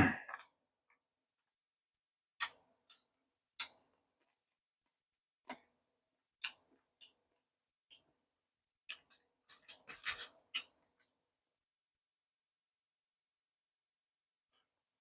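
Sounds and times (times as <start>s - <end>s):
eating clicks and taps: 2.4s - 3.8s.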